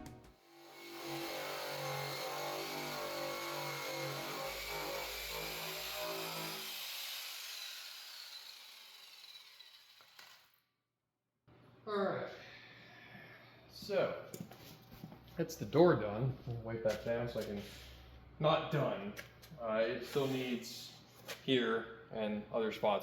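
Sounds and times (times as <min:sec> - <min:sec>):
power sander on steel: 0:00.4 - 0:10.4.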